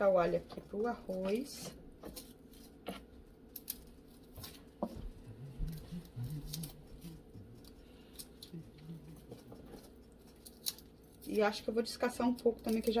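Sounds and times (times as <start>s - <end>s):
garlic skin crackling under knife: 9.8s - 13.0s.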